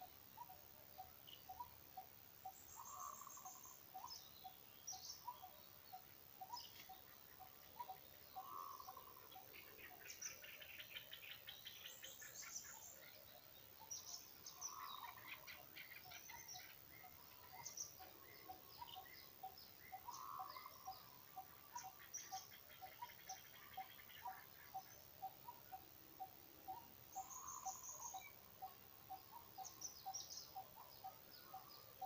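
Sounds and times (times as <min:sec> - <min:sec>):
faint birds chirping: 0:00.0 - 0:32.0.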